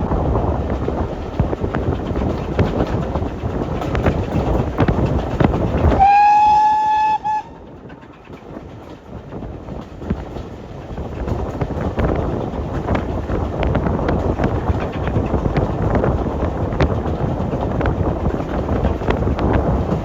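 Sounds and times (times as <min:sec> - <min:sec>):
steam train rumble and clatter: 0:00.0 - 0:20.0
steam train whistle: 0:05.9 - 0:07.6.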